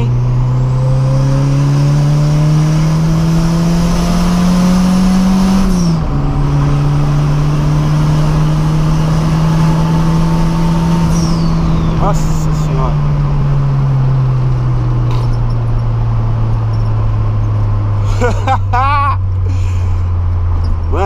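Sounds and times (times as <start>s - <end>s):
car engine at full throttle: 0.0s - 21.0s
gearbox whine: 5.5s - 17.8s.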